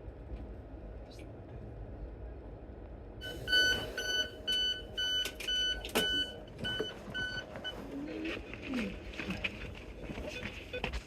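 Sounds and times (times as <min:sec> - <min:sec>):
electronic warning beeps: 0:03.2 - 0:08.3.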